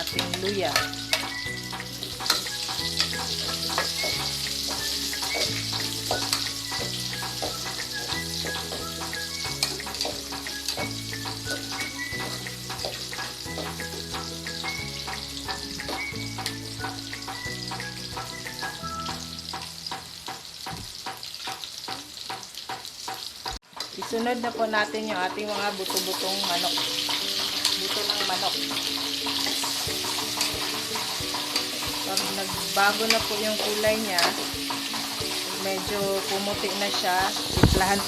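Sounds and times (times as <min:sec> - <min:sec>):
background music with bass line: 0:00.0 - 0:20.8, 0:26.6 - 0:38.0
onion and ginger sizzling in oil: 0:00.0 - 0:38.0
utensil clicking against pan: 0:20.2 - 0:24.7, 0:25.4 - 0:38.0.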